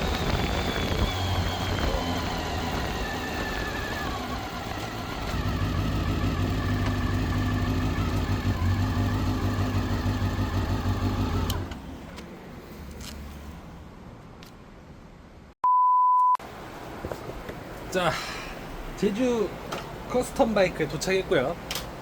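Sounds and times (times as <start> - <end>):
motorcycle engine idling: 0.0 - 11.7.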